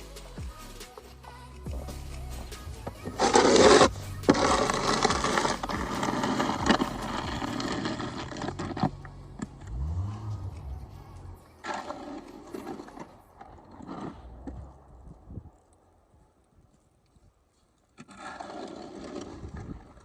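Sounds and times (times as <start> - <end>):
snow shovel scraping ground: 1.8 - 14.8, 17.9 - 20.0.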